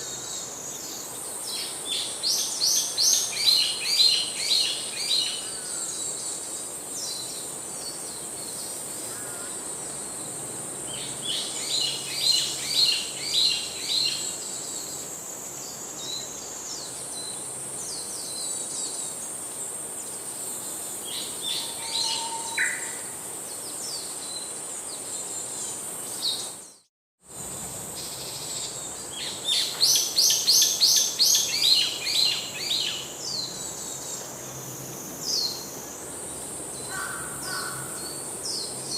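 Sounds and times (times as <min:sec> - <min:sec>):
high-pitched insect drone: 0:08.1 - 0:24.4.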